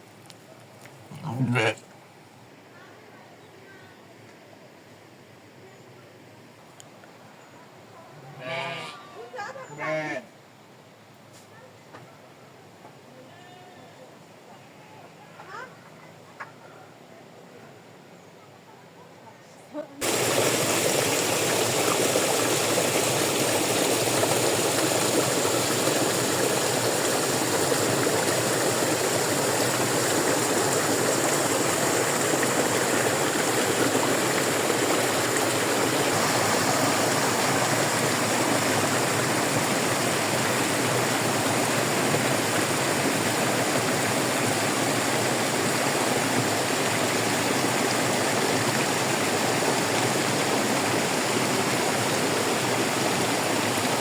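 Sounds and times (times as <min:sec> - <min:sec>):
stream rushing: 0:20.0 - 0:54.0.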